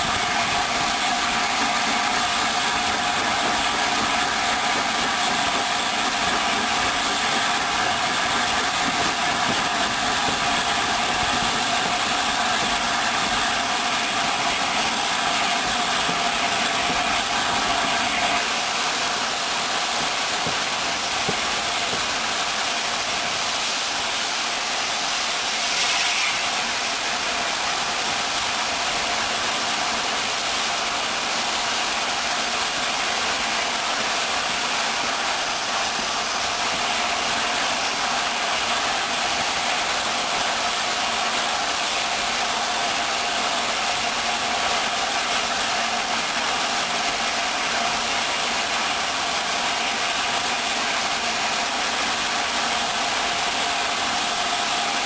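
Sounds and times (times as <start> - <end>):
steam hiss: 0.0 - 55.0
steam train running: 0.0 - 55.0.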